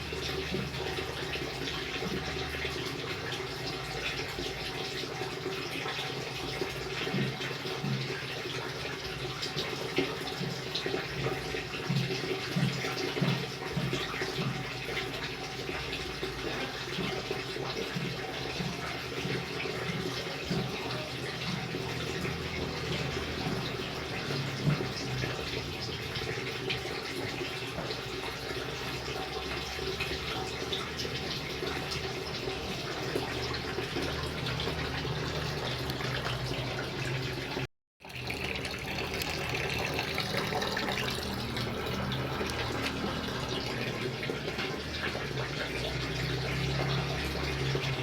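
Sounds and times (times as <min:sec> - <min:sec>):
rain falling and splashing: 0:19.7 - 0:48.0.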